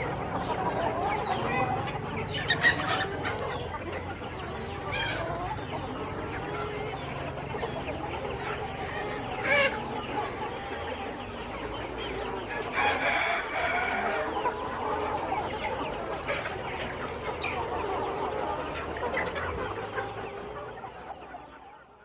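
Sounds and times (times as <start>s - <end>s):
chickens clucking: 0.0s - 22.0s
loud chicken call: 12.1s - 15.2s
rooster crowing: 12.7s - 14.3s.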